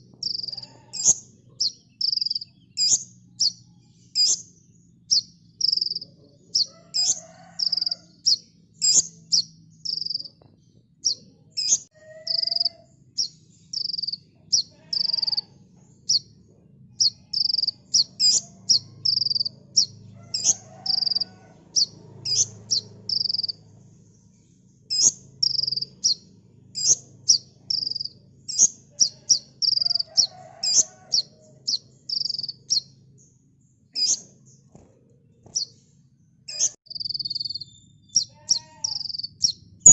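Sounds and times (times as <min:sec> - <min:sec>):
bird chirping high and sharp: 0:00.1 - 0:10.4, 0:11.0 - 0:16.3, 0:17.0 - 0:23.6, 0:24.9 - 0:32.9, 0:33.9 - 0:34.3, 0:36.5 - 0:39.9
softer lower bird calls: 0:11.0 - 0:16.3.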